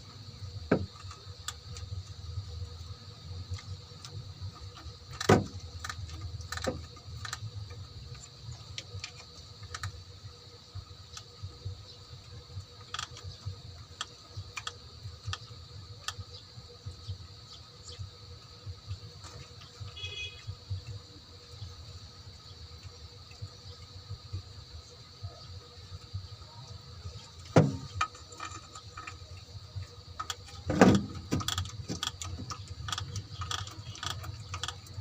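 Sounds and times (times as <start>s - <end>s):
steady background hum: 0.0s - 35.0s
hand tools clicking and knocking: 30.2s - 35.0s.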